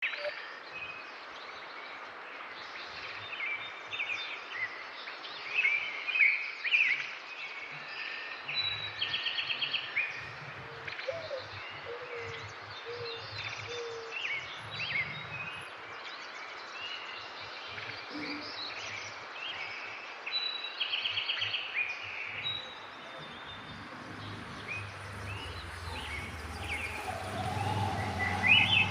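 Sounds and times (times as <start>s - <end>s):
small birds chirping: 7.4s - 28.9s.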